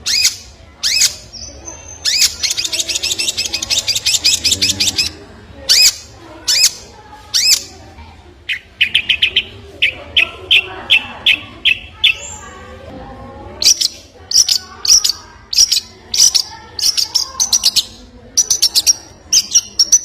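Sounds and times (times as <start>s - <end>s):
bird fast trill: 0.0s - 6.8s, 13.6s - 20.0s.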